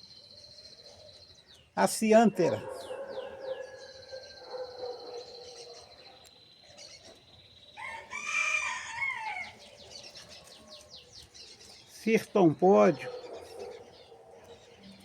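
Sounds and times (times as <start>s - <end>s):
small birds chirping: 0.0s - 15.0s
loud long bird call: 7.8s - 10.7s.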